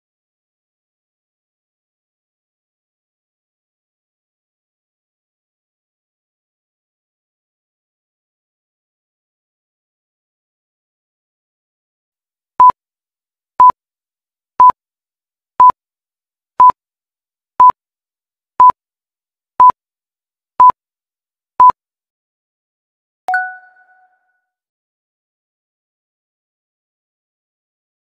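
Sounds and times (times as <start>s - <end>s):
short high timer beeps: 23.3s - 24.2s.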